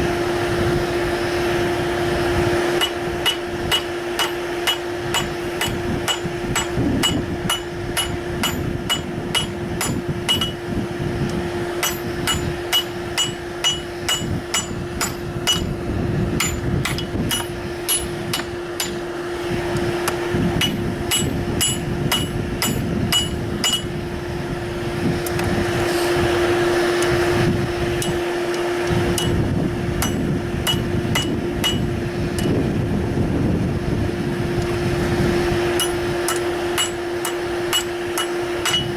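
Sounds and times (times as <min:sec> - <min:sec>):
steady hum: 0:00.0 - 0:38.9
hammer ringing on anvil: 0:02.8 - 0:10.7, 0:11.3 - 0:15.8, 0:16.4 - 0:19.2, 0:20.6 - 0:24.0, 0:28.0 - 0:32.5, 0:35.8 - 0:38.9.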